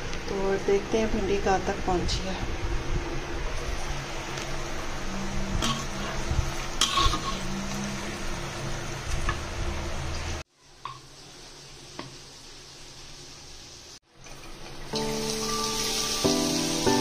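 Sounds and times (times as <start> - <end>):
onion and tomato sizzling in oil: 3.7 - 17.0
okra sizzling in hot oil: 3.8 - 17.0.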